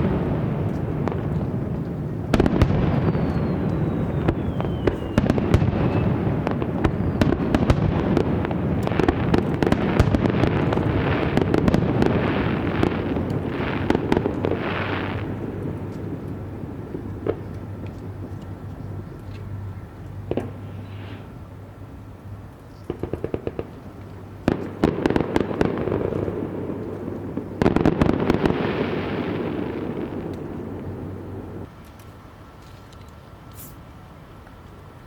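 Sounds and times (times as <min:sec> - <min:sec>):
fireworks bursting with bangs: 0:00.0 - 0:18.7, 0:20.2 - 0:21.3, 0:22.8 - 0:31.7
fireworks crackling: 0:00.0 - 0:21.5, 0:22.8 - 0:32.6
falling firework whistle: 0:02.4 - 0:07.8.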